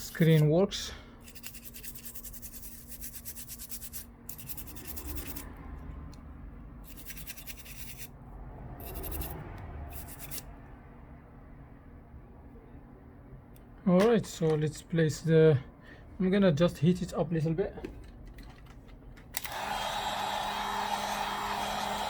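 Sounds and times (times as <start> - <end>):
toothbrush scrubbing circuit board: 1.2 - 5.5, 6.8 - 8.1, 8.8 - 10.5.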